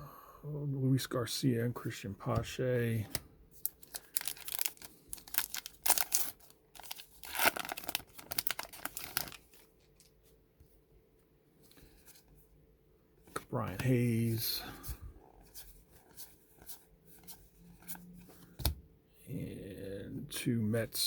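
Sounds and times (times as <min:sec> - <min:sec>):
wrapper tearing and crinkling: 0:03.6 - 0:10.1.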